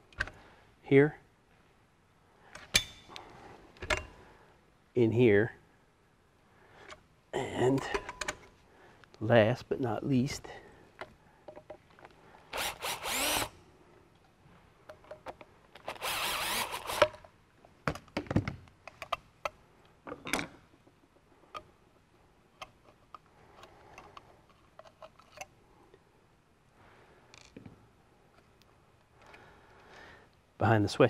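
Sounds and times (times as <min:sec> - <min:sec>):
cordless drill running: 0:12.5 - 0:13.6, 0:15.8 - 0:17.2
metal parts clicking and knocking: 0:22.6 - 0:25.5.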